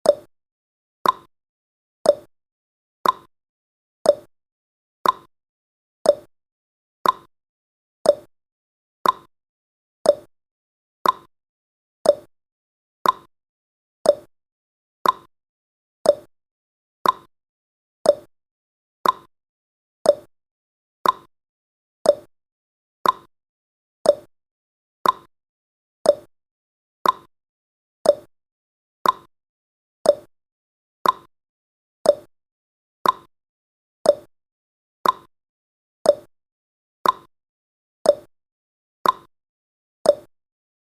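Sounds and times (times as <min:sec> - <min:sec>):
clock tick-tock: 0:00.0 - 0:00.3, 0:01.0 - 0:01.3, 0:02.0 - 0:02.3, 0:03.0 - 0:03.3, 0:04.0 - 0:04.3, 0:05.0 - 0:05.3, 0:06.0 - 0:06.3, 0:07.0 - 0:07.3, 0:08.0 - 0:08.3, 0:09.0 - 0:09.3, 0:10.0 - 0:10.3, 0:11.0 - 0:11.3, 0:12.0 - 0:12.3, 0:13.0 - 0:13.3, 0:14.0 - 0:14.3, 0:15.0 - 0:15.3, 0:16.0 - 0:16.3, 0:17.0 - 0:17.3, 0:18.0 - 0:18.3, 0:19.0 - 0:19.3, 0:20.0 - 0:20.3, 0:21.0 - 0:21.3, 0:22.0 - 0:22.3, 0:23.0 - 0:23.3, 0:24.0 - 0:24.3, 0:25.0 - 0:25.3, 0:26.0 - 0:26.3, 0:27.0 - 0:27.3, 0:28.0 - 0:28.3, 0:29.0 - 0:29.3, 0:30.0 - 0:30.3, 0:31.0 - 0:31.3, 0:32.0 - 0:32.3, 0:33.0 - 0:33.3, 0:34.0 - 0:34.3, 0:35.0 - 0:35.3, 0:36.0 - 0:36.3, 0:37.0 - 0:37.3, 0:38.0 - 0:38.3, 0:39.0 - 0:39.3, 0:40.0 - 0:40.4.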